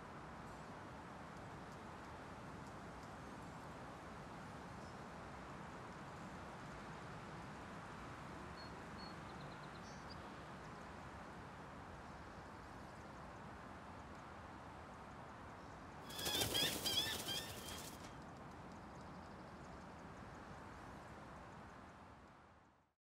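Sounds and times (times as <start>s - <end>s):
outdoor ambience hiss: 0.0s - 22.9s
bird chirping: 16.1s - 18.1s
bird wingbeats: 16.1s - 18.2s.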